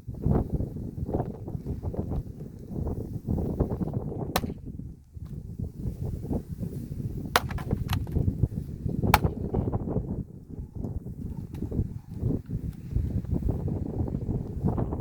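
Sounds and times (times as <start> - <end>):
wind noise on microphone: 0.0 - 15.0
wood splitting cracks: 4.3 - 4.6, 7.3 - 8.3, 9.1 - 9.5.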